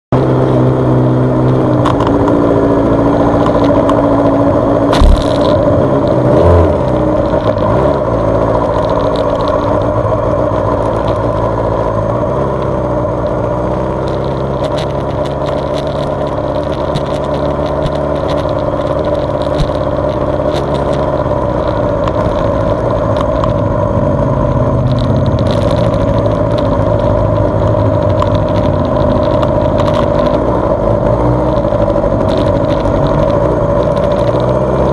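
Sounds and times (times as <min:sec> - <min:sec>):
motorcycle engine revving: 0:00.2 - 0:34.9
sharp knock: 0:04.9 - 0:05.6.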